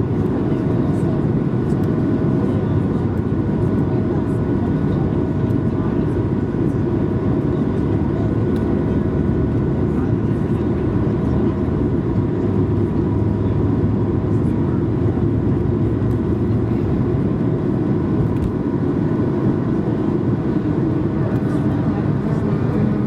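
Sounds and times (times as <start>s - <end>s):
faint steady engine tones: 0.0s - 23.0s
jet cabin engine and airflow noise: 0.0s - 23.0s.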